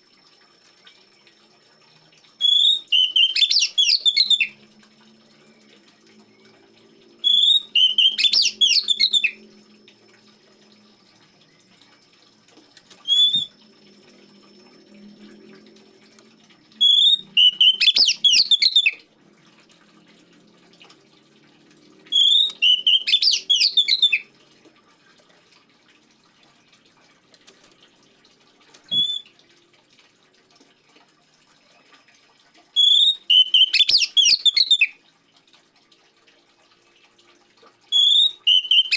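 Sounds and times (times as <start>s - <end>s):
trickling water: 0.0s - 38.9s
bird singing whistled notes: 2.4s - 4.6s, 7.2s - 9.4s, 13.0s - 13.5s, 16.8s - 19.0s, 22.1s - 24.2s, 28.9s - 29.2s, 32.8s - 34.9s, 38.0s - 38.9s.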